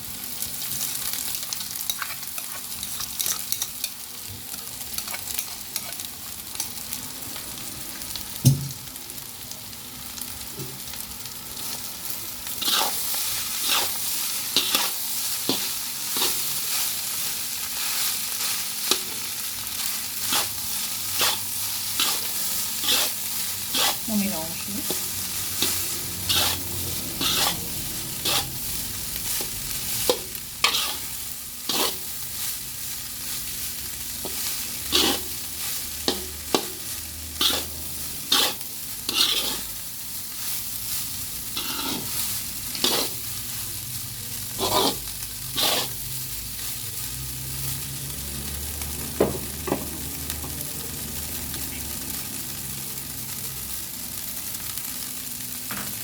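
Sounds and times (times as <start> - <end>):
rice sizzling in a pan: 0.0 - 56.0
spatula scraping and knocking pan: 20.3 - 24.1, 24.8 - 27.6, 28.2 - 28.6, 29.4 - 31.1, 31.7 - 32.0, 34.2 - 35.3, 36.0 - 36.8, 37.4 - 37.7, 38.3 - 39.7, 41.6 - 42.1, 42.7 - 43.2, 44.6 - 45.0, 45.6 - 45.9.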